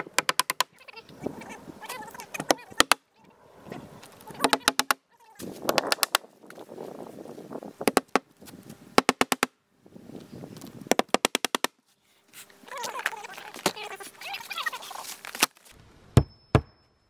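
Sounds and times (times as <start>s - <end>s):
hammer nailing roof shingles: 0.0s - 0.7s.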